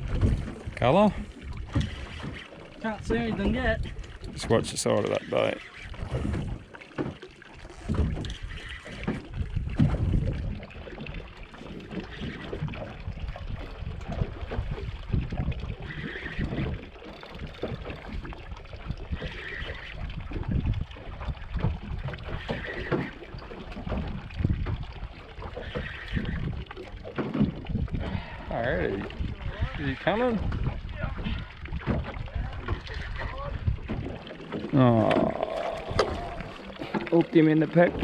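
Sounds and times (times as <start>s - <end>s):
wind buffeting microphone: 0.0s - 6.7s, 7.6s - 38.0s
water slapping against boat hull: 0.0s - 38.0s.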